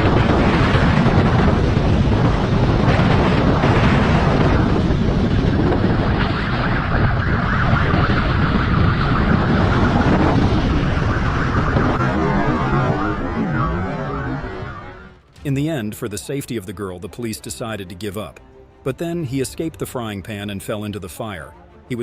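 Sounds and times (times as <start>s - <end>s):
wind noise on microphone: 0.0s - 15.0s
vehicle running at speed: 0.0s - 15.3s.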